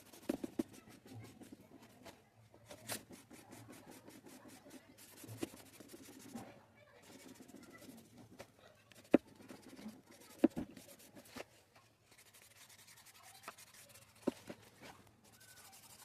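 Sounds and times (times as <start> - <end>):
eraser rubbing on paper: 2.7 - 8.4, 9.0 - 11.5, 12.1 - 16.0.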